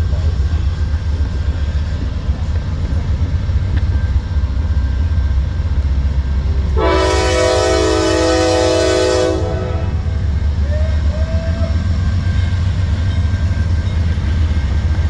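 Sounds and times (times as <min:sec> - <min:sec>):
freight train rumbling: 0:00.0 - 0:15.0
locomotive air horn: 0:06.8 - 0:10.2.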